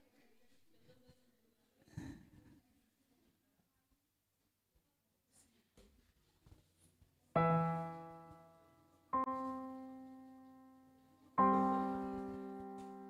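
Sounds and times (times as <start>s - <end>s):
piano chords: 7.4s - 13.0s.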